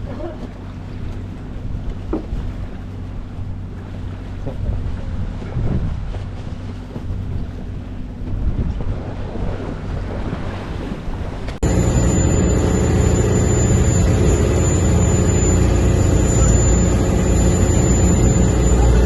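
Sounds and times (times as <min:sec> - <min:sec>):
boat engine drone: 0:00.0 - 0:19.0
sea wash: 0:00.0 - 0:19.0
wind buffeting microphone: 0:01.0 - 0:11.8.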